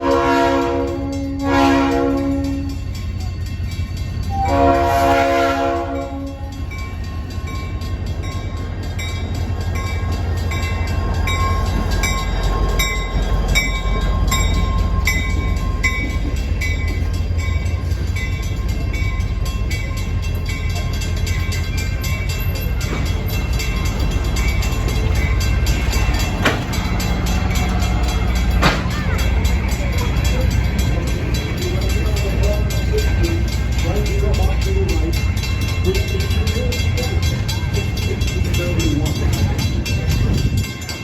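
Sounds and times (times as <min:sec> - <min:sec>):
train horn blasts: 0:00.0 - 0:02.9, 0:04.3 - 0:06.6
crossing bell dinging: 0:00.0 - 0:41.0
train rumble: 0:00.0 - 0:41.0.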